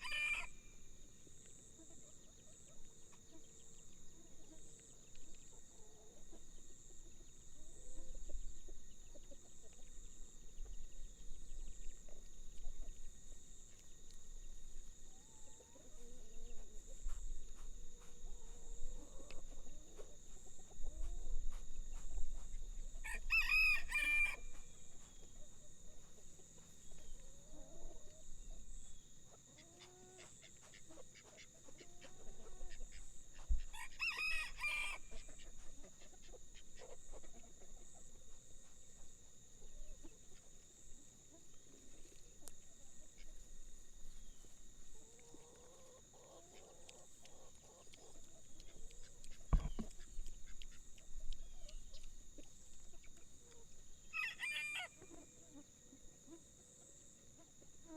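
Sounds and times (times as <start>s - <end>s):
rooster crowing: 0.0s - 0.7s, 23.0s - 24.6s, 33.7s - 35.2s, 54.1s - 55.0s
chicken clucking softly: 1.3s - 14.1s, 14.8s - 57.9s.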